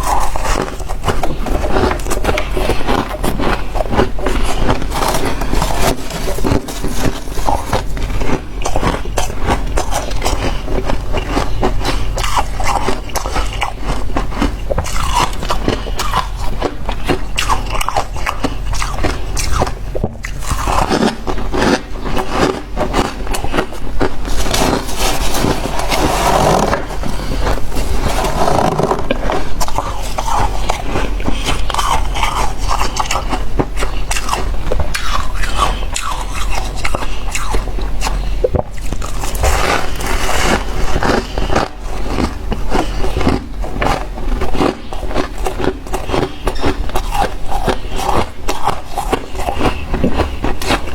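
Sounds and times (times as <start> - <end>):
crunching and chewing frost: 0.0 - 50.9
scraping: 18.5 - 45.3.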